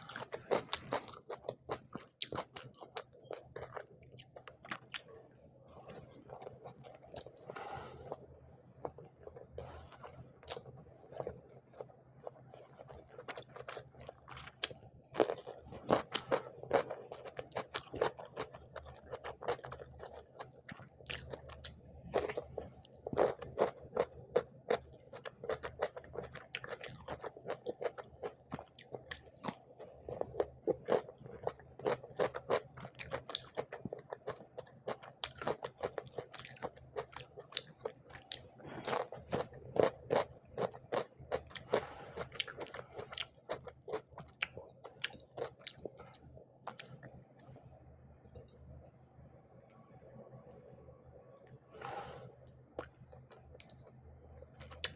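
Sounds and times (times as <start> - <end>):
cucumber crunching when chewed: 10.4 - 47.6.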